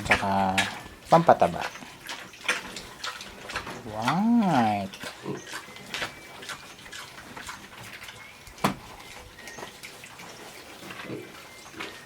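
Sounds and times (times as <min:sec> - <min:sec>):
pigs chomping wet feed: 0:00.0 - 0:12.0
sharp knock: 0:08.6 - 0:08.9.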